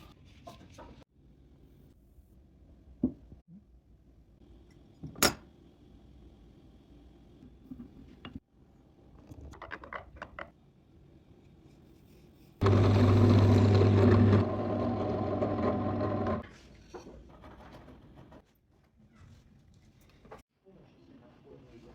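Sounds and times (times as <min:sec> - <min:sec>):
electric power tool humming: 0:12.6 - 0:16.4.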